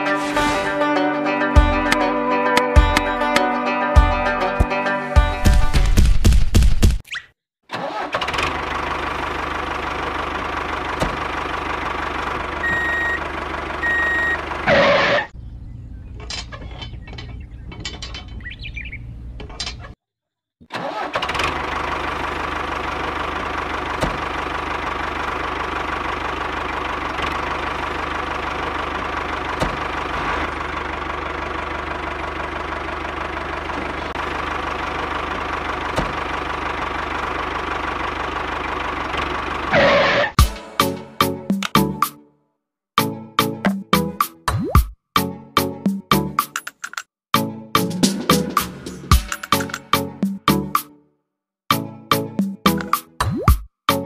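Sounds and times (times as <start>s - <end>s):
tractor engine running: 0.0s - 7.0s, 7.7s - 20.0s, 20.7s - 42.1s, 47.8s - 50.9s
short beeps: 12.6s - 13.2s, 13.8s - 14.4s.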